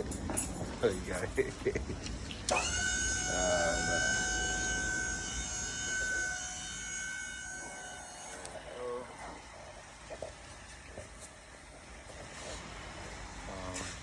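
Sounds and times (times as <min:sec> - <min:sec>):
ringing metallic tone: 0:02.5 - 0:09.5.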